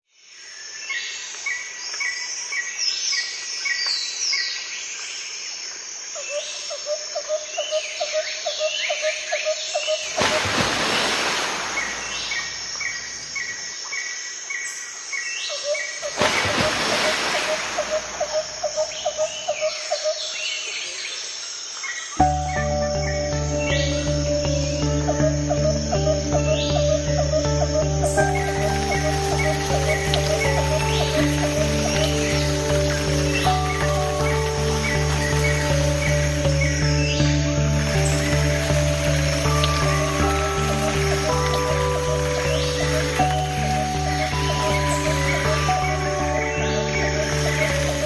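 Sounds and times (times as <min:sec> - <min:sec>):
birds singing and calling: 0:06.2 - 0:48.0
bird trill: 0:22.2 - 0:48.0
music: 0:22.2 - 0:48.0.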